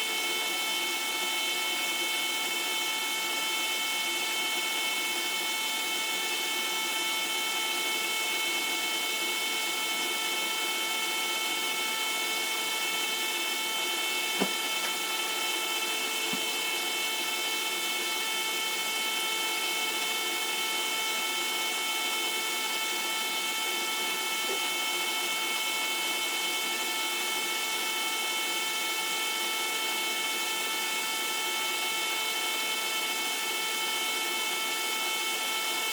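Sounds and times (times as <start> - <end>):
pump whining hum: 0.0 - 35.9.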